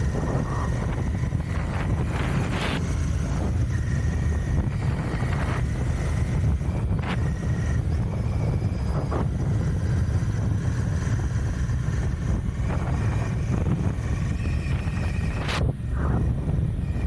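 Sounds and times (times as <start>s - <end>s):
motorcycle engine rumbling: 0.0s - 17.0s
wind buffeting microphone: 0.0s - 17.0s.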